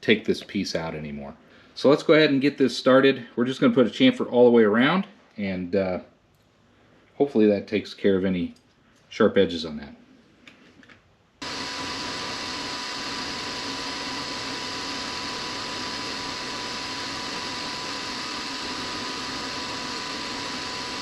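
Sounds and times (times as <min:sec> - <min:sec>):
milling machine running: 0:11.4 - 0:21.0
steady machine whine: 0:11.4 - 0:21.0.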